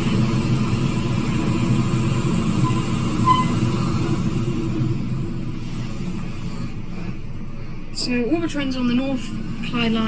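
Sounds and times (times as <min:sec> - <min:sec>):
train wheels and motors rumbling: 0:00.0 - 0:10.0
faint high note: 0:02.6 - 0:03.8.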